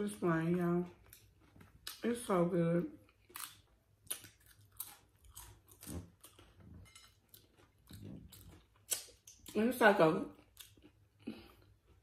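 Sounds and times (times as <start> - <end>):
chewing crunchy chips: 3.0 - 9.6, 10.3 - 12.0.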